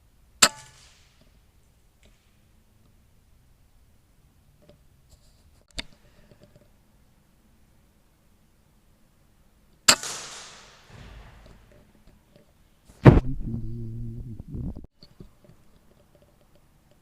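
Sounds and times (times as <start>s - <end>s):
air rifle shots: 9.9s - 11.7s
low hum: 12.9s - 14.9s.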